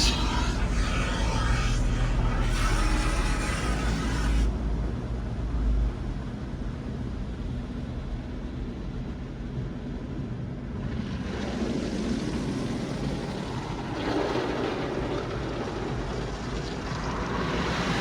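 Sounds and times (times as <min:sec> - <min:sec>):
car wash machinery rumble: 0:00.0 - 0:04.5.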